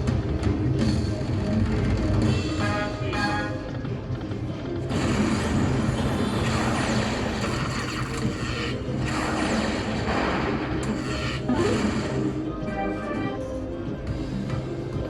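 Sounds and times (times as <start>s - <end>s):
slot machine game music: 0.7s - 15.0s.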